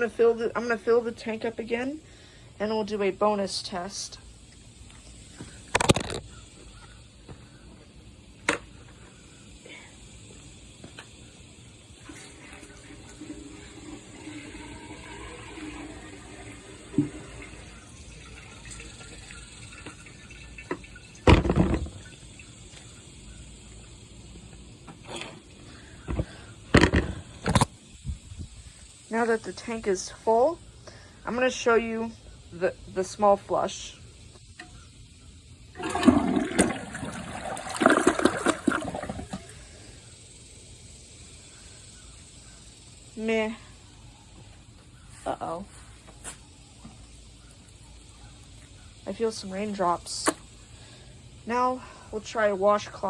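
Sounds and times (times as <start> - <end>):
toilet tank refilling: 11.9 - 22.9, 25.0 - 27.7, 35.7 - 39.8
loud clunk: 21.3 - 22.0, 26.1 - 27.6
small click: 50.2 - 50.4.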